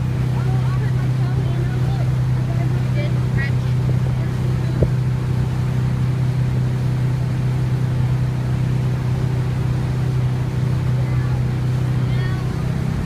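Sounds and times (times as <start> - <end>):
motorboat engine humming: 0.0 - 13.0
water noise: 0.0 - 13.0
wind noise: 3.7 - 5.4.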